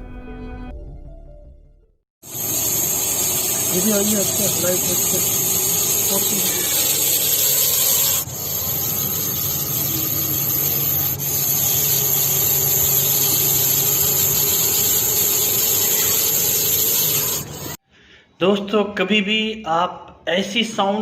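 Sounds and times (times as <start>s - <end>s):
snake hissing: 2.2s - 17.8s.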